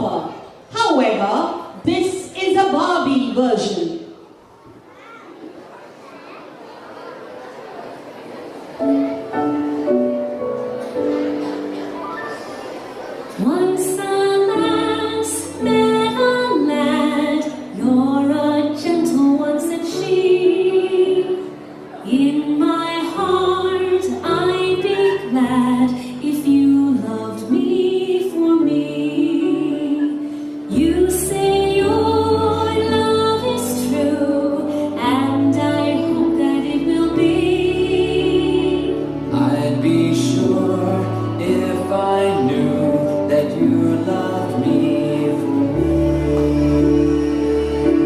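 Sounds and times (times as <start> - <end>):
woman singing: 13.4 - 46.7
instrumental backing: 30.6 - 48.0.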